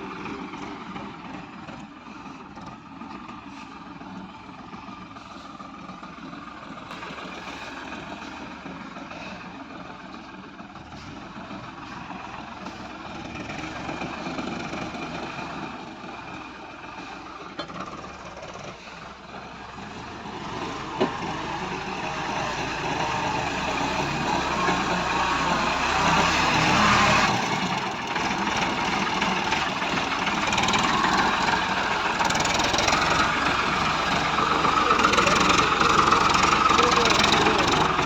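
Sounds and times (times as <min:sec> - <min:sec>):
heavy vehicle engine running: 0:00.0 - 0:38.0.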